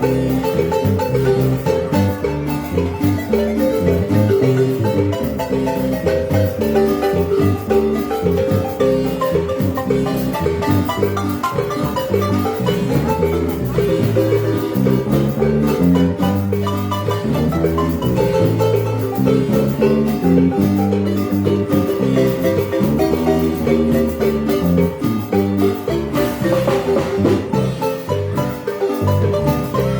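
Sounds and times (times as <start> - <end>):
marimba ensemble playing dance tune: 0.0 - 29.9.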